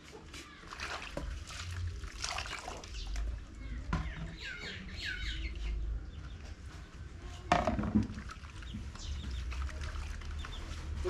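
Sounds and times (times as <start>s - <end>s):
chickens calling: 2.8s - 7.0s.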